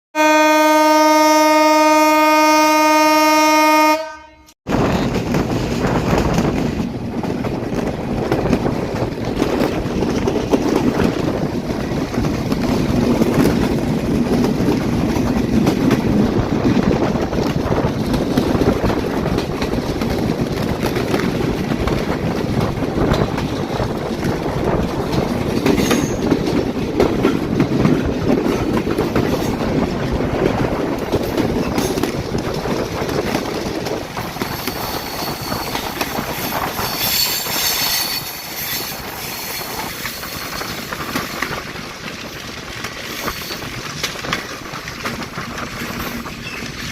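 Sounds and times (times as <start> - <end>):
locomotive horn: 0.2 - 4.5
train rumbling over rails: 0.2 - 46.9.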